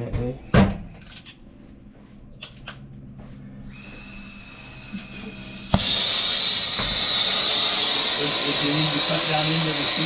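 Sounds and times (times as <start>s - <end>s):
torch flame hissing: 4.6s - 10.0s.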